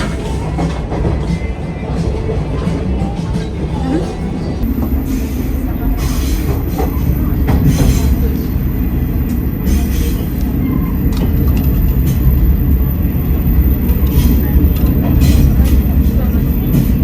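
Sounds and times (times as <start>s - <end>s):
train rumbling on rails: 0.0s - 17.0s
wheels clicking on track: 0.0s - 17.0s.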